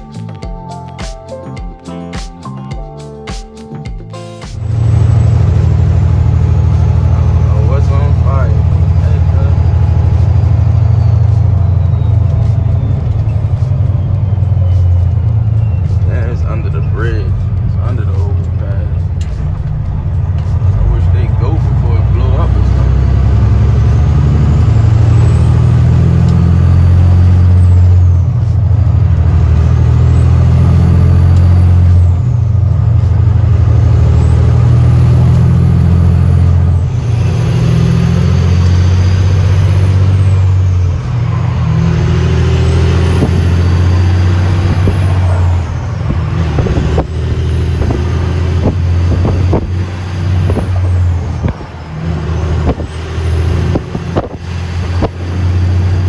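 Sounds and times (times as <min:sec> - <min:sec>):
truck diesel engine shifting gears: 0:00.0 - 0:56.0
turbo whistle: 0:08.9 - 0:17.1.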